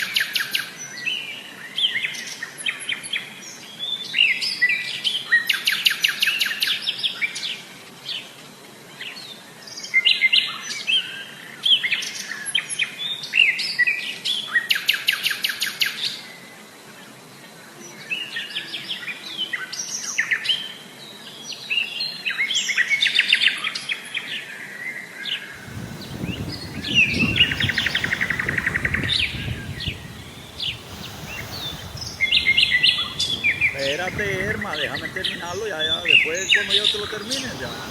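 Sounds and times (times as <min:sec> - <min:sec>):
birds singing and trilling: 0:25.6 - 0:37.9.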